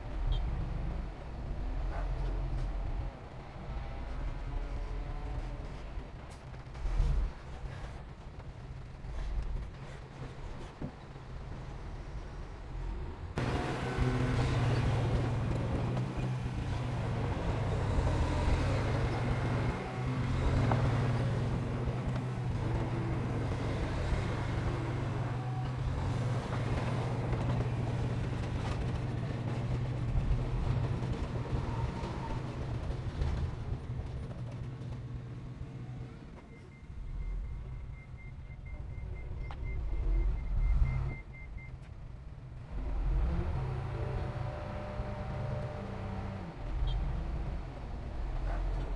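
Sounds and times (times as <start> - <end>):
diesel machinery engine drone: 13.4 - 34.4.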